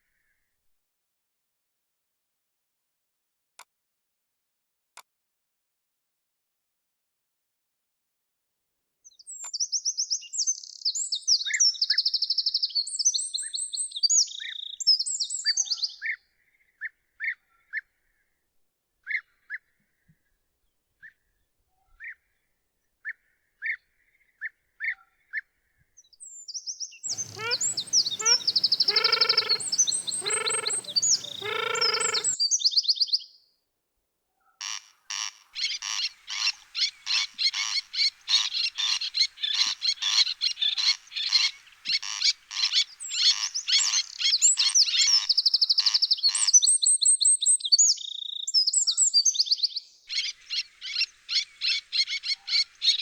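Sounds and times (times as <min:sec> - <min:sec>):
bird chirps: 0:27.1 - 0:32.4
deep croaks: 0:27.1 - 0:32.4
frog pulsed call: 0:27.1 - 0:32.4
songbirds singing: 0:27.1 - 0:32.4.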